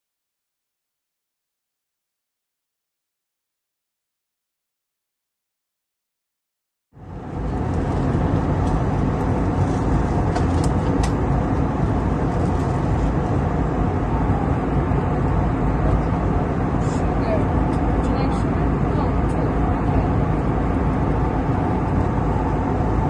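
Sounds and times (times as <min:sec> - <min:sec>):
airliner cabin engine noise: 0:07.0 - 0:23.0.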